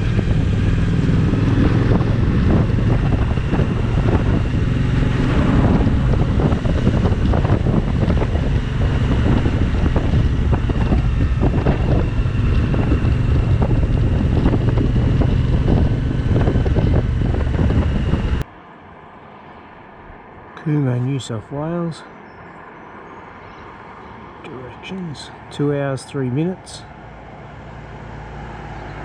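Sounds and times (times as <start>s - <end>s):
motorcycle engine running: 0.0s - 18.4s
wind buffeting microphone: 0.0s - 18.5s.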